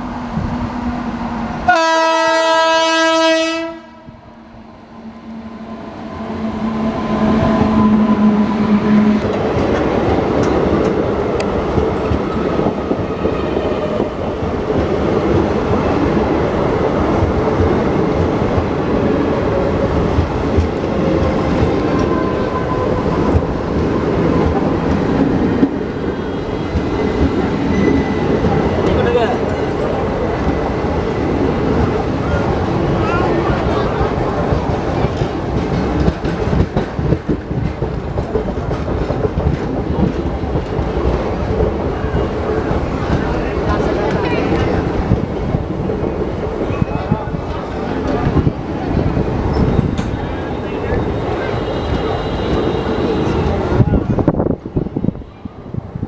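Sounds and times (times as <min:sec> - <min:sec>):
train rumbling past: 0:00.0 - 0:56.0
locomotive horn blast: 0:01.7 - 0:04.2, 0:51.4 - 0:53.6.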